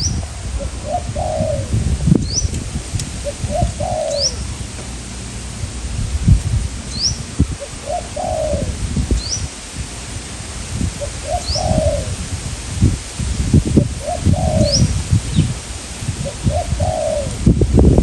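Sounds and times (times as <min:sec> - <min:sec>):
small bird chirping: 0:00.0 - 0:00.2, 0:02.2 - 0:02.6, 0:03.3 - 0:04.6, 0:06.9 - 0:07.3, 0:07.9 - 0:09.5, 0:11.2 - 0:12.1, 0:14.0 - 0:15.6
doves cooing: 0:00.0 - 0:05.9, 0:06.7 - 0:09.6, 0:10.4 - 0:12.4, 0:13.8 - 0:17.6
wind buffeting microphone: 0:00.0 - 0:18.0.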